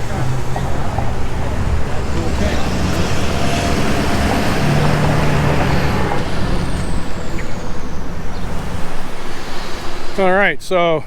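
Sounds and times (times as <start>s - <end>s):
engine low hum: 0.0s - 11.0s
vehicles running past: 0.0s - 11.0s.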